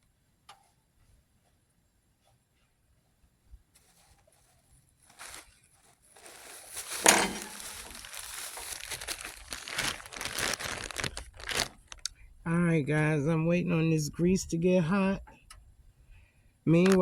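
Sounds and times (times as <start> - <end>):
crinkling handling noise: 3.6 - 12.3, 16.8 - 17.0
sharp crackle: 5.0 - 12.2.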